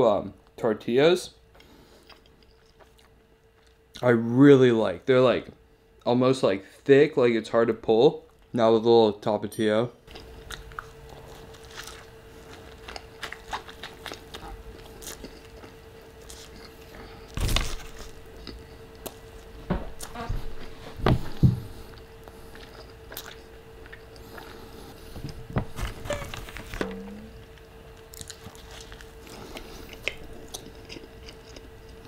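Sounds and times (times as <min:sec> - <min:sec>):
faint steady hum: 0:00.0 - 0:32.0
chewing and wet mouth sounds: 0:01.6 - 0:04.0, 0:10.1 - 0:17.3, 0:17.9 - 0:19.6, 0:21.9 - 0:24.9, 0:27.6 - 0:32.0.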